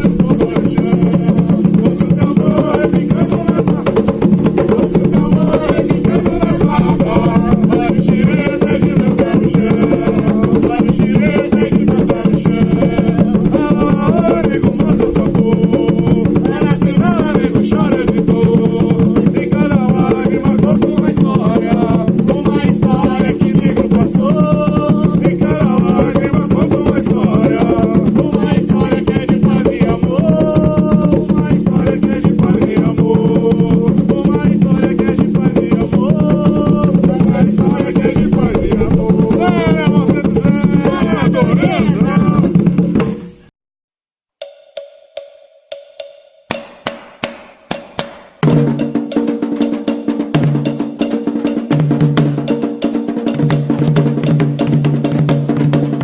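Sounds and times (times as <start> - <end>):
voices singing: 0.0 - 42.8
hand drums playing: 0.0 - 43.5, 44.4 - 56.0.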